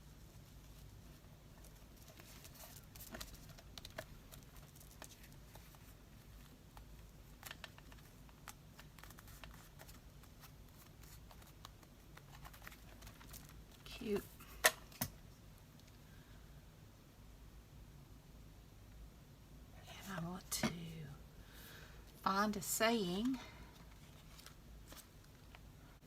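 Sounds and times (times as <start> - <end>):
low room hum: 0.0 - 26.0
paper rustling: 0.5 - 13.6, 23.2 - 25.6.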